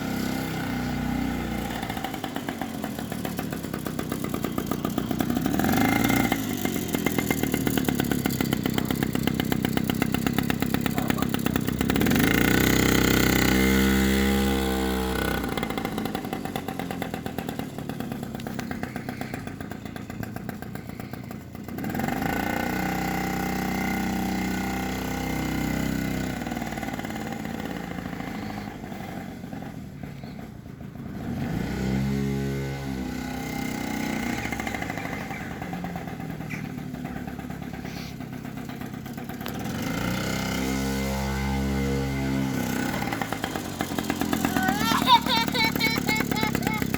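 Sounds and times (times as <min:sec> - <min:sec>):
two-stroke engine idling: 0:00.0 - 0:31.7, 0:33.0 - 0:46.9
engine throttle blips: 0:33.0 - 0:46.9.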